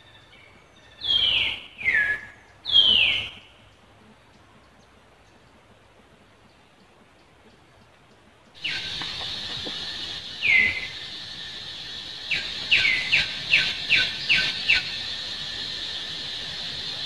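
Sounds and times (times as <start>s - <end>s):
high-pitched background hiss: 0.0s - 17.0s
bird calling: 0.9s - 3.5s, 8.6s - 17.0s.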